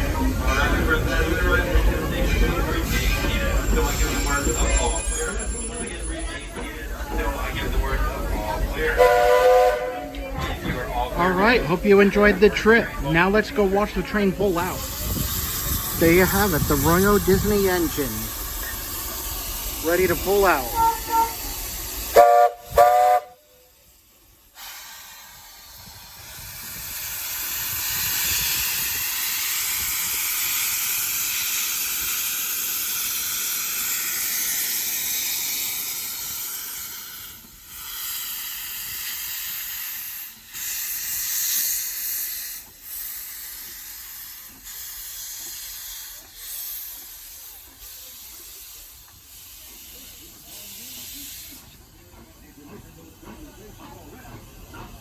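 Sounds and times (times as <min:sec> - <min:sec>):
locomotive steam hiss: 0:00.0 - 0:55.0
steam locomotive whistle toots: 0:09.0 - 0:10.2, 0:19.9 - 0:23.6.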